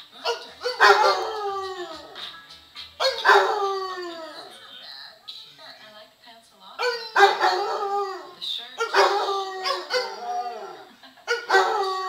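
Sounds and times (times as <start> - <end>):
dog howling: 0.2 - 2.2, 3.0 - 4.5, 6.8 - 12.0.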